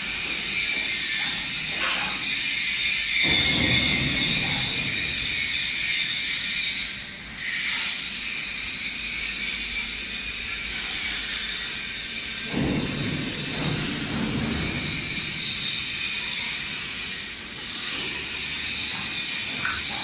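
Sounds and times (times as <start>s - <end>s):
welding arc hissing: 15.1s - 20.0s.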